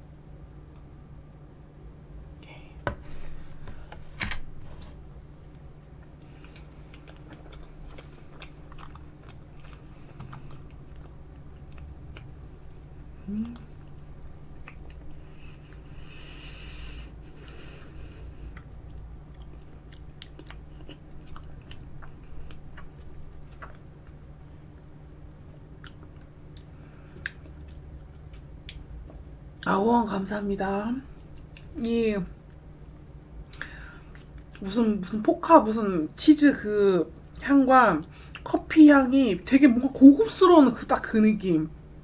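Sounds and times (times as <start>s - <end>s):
quiet chewing of soft food: 4.9s - 29.7s, 31.1s - 31.8s, 32.4s - 34.7s
person humming: 13.2s - 13.7s.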